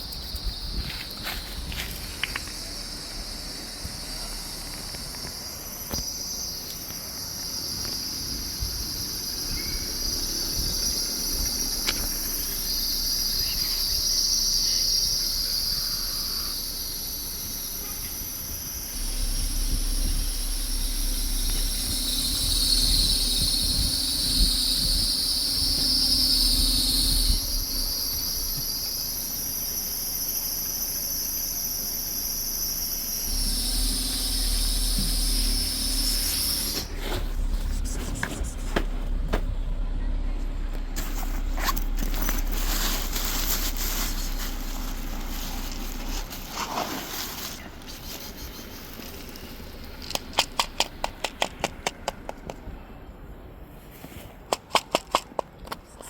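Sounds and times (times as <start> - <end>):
insects shrilling: 0.0 - 38.6, 41.0 - 51.4
low rumble: 18.8 - 26.6, 36.8 - 47.8.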